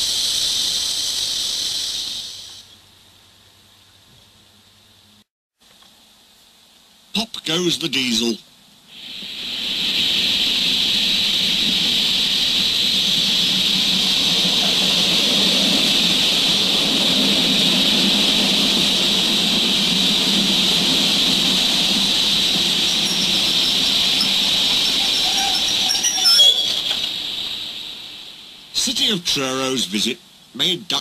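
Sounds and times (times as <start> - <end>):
train running: 0.0 - 2.7, 8.9 - 30.1
low hum: 9.0 - 28.8.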